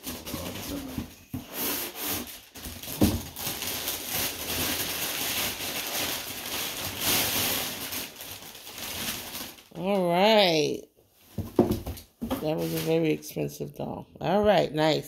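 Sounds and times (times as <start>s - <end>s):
packaging rustling and crinkling: 0.0s - 10.0s, 11.3s - 13.2s.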